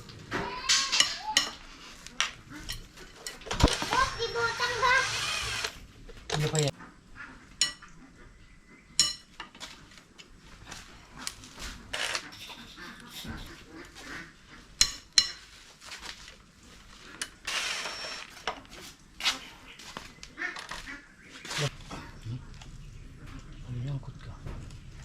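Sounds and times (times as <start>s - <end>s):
metal tools clanking: 6.2s - 6.7s.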